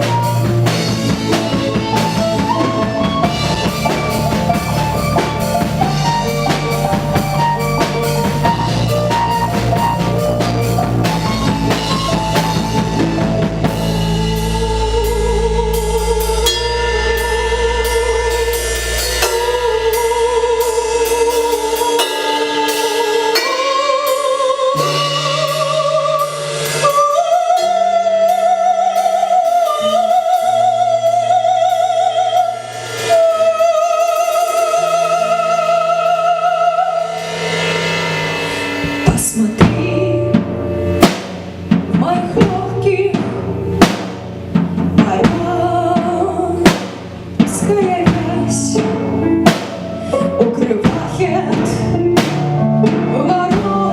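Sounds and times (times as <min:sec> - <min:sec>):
guitar: 0:00.0 - 0:14.8
bass: 0:00.0 - 0:53.9
drum kit: 0:00.0 - 0:53.9
lead melody with wide vibrato: 0:00.0 - 0:53.9.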